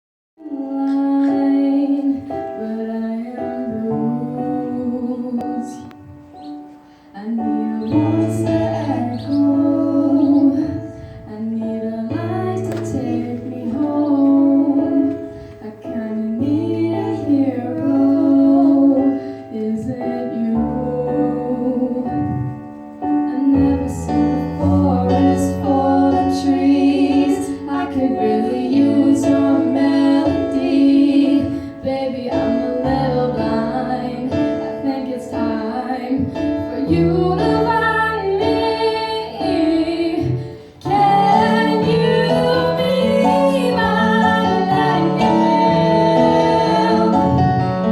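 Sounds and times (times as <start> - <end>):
instrumental accompaniment: 0.4 - 47.9
girl singing: 23.3 - 47.4.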